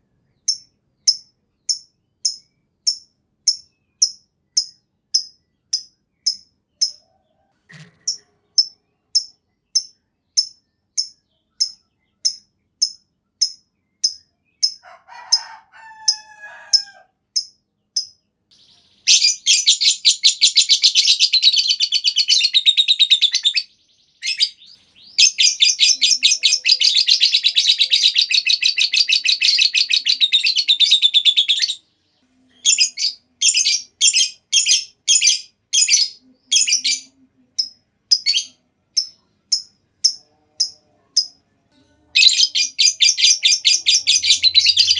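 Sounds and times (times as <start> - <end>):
bird chirping: 0.0 - 44.9
bird chattering trills: 19.1 - 31.8, 42.2 - 44.9.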